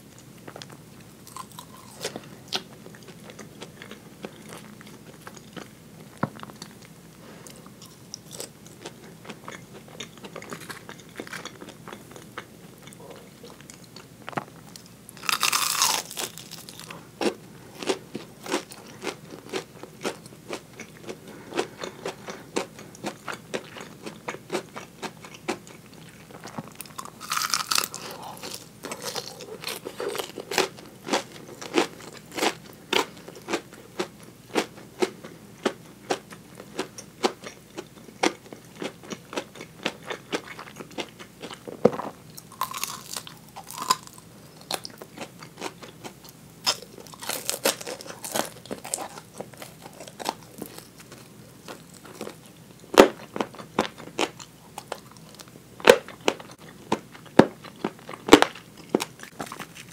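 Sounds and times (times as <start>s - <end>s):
crunching fried chicken: 0.2s - 59.9s.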